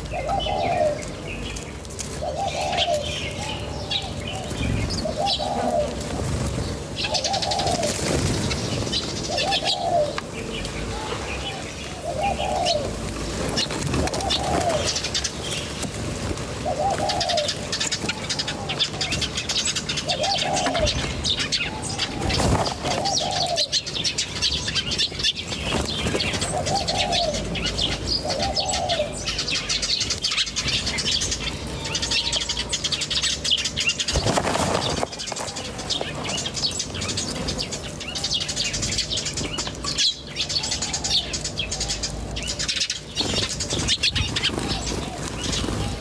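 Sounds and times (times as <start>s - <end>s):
low cooing call: 0.0s - 15.3s, 16.6s - 24.1s, 26.1s - 34.0s
small birds chirping: 0.0s - 46.0s.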